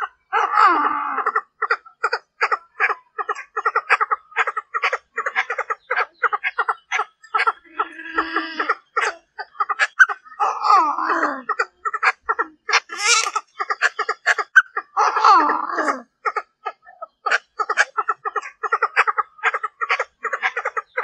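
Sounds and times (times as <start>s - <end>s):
francolin clucking notes: 11.5s - 14.9s
francolin drawn-out call: 12.8s - 13.9s.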